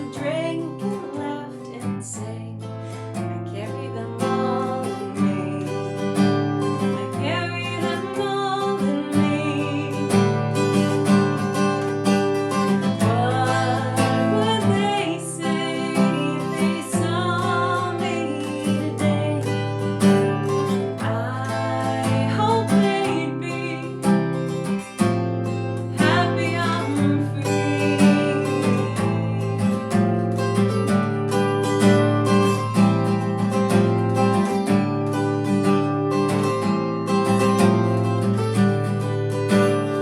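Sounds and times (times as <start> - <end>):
acoustic guitar strumming: 0.0 - 40.0.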